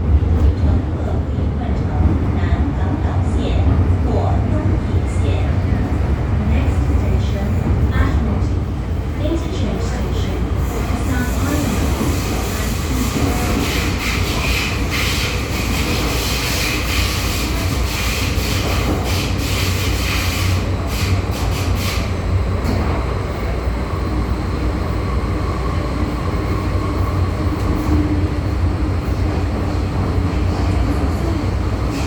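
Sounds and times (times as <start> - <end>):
train wheels rumbling on rail: 0.0 - 32.0.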